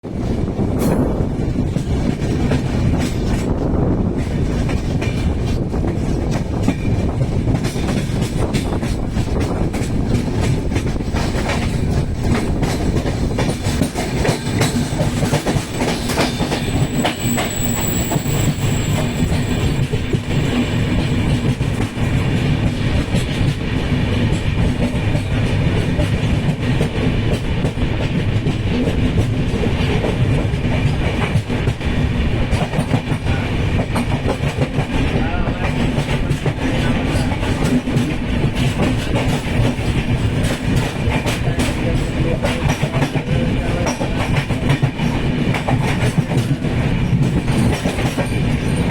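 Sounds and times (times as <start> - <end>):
train rumbling on rails: 0.0 - 48.9
high squeal: 15.6 - 21.5.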